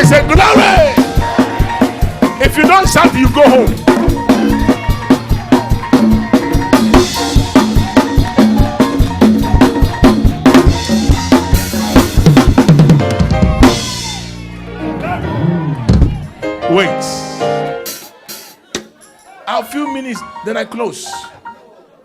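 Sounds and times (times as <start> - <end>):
drum kit playing fast beat: 0.0 - 14.5, 15.9 - 18.9
bass line: 0.0 - 16.4.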